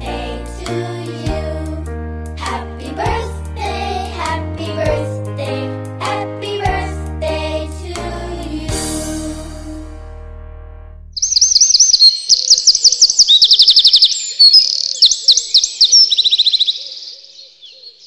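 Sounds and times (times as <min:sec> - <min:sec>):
music: 0:00.0 - 0:11.2
songbird chirping and trilling: 0:11.2 - 0:18.0.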